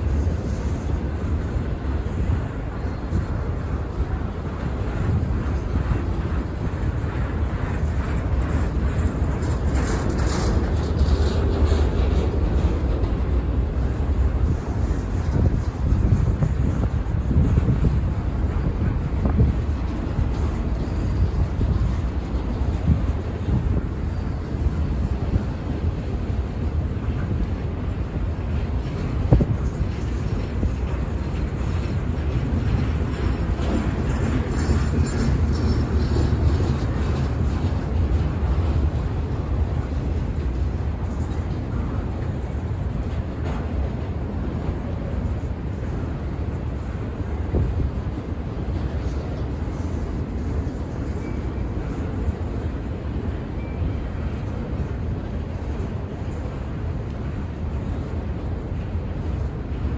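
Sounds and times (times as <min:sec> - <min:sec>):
freight train rumbling: 0:00.0 - 0:59.9
wind buffeting microphone: 0:00.0 - 0:59.9.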